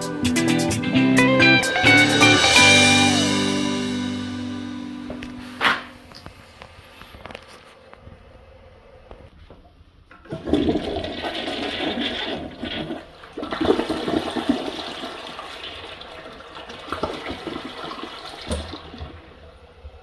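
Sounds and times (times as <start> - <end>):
toilet flushing: 10.1 - 20.0.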